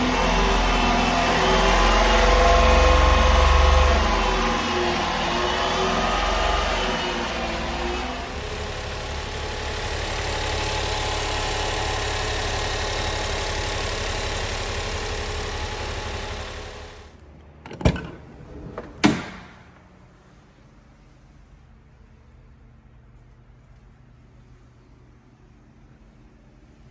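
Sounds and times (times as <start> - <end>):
small truck engine idling: 0.0 - 17.2.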